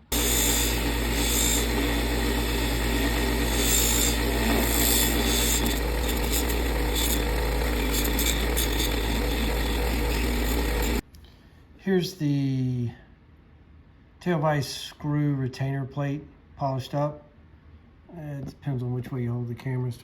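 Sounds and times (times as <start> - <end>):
power buffing wheel running: 0.0 - 11.0.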